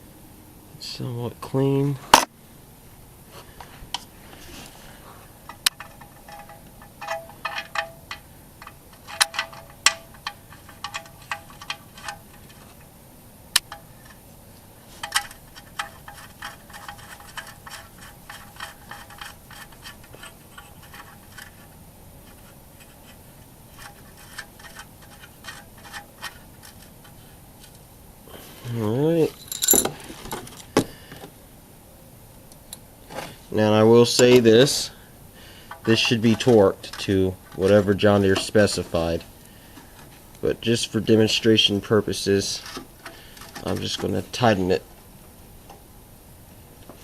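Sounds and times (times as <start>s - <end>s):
light metallic clicks and scrapes: 3.6s - 12.9s, 13.6s - 27.9s, 35.7s - 41.5s, 42.3s - 44.7s.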